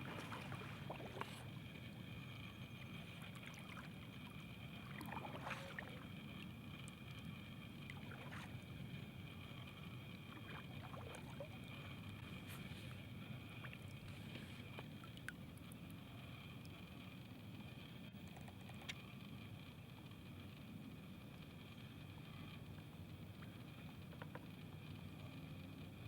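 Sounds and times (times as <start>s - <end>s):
water moving against kayak hull: 0.0s - 16.1s
steady high-pitched hum: 0.0s - 26.0s.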